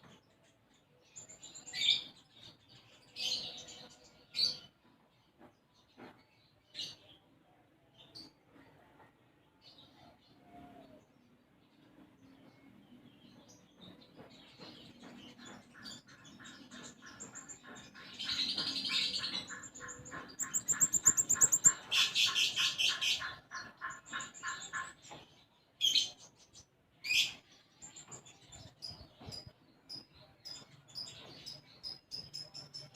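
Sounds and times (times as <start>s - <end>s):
sharp bird calls: 15.0s - 25.0s
songbird trilling: 17.1s - 23.2s.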